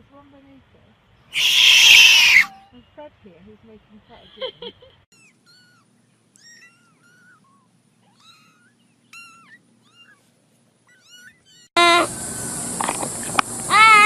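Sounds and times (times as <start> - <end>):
kitten mewing: 1.4 - 2.6.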